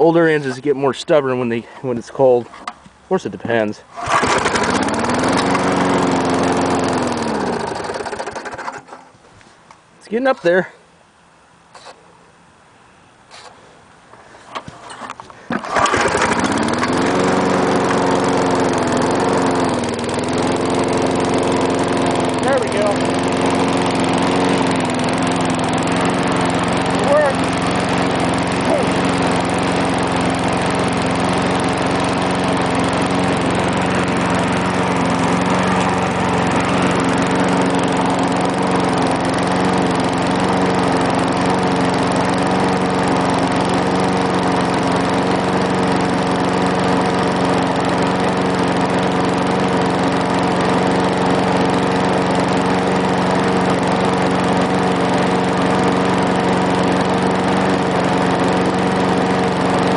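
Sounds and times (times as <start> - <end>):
lawn mower engine running: 0.0 - 9.3, 14.5 - 59.9.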